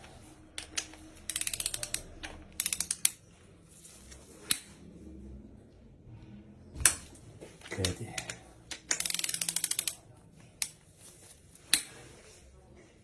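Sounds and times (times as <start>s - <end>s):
ratchet wrench clicking: 0.6s - 3.2s, 8.8s - 10.0s.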